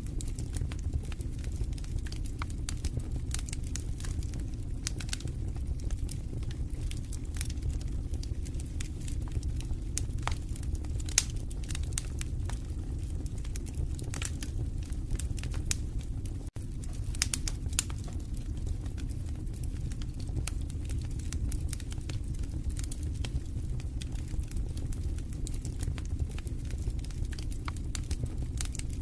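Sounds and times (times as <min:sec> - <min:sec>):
fire crackling and popping: 0:00.0 - 0:29.0
low rumble of flames: 0:00.0 - 0:29.0.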